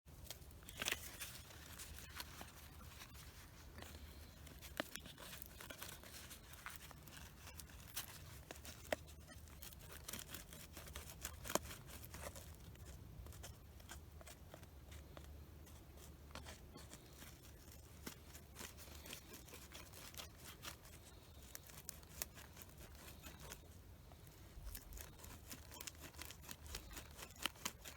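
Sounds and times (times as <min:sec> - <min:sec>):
dry twigs crackling and snapping: 0:00.2 - 0:27.9.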